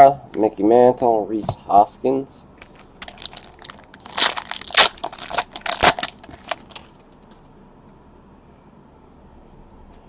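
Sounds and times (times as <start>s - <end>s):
foil wrapper tearing and crinkling: 2.7s - 7.0s.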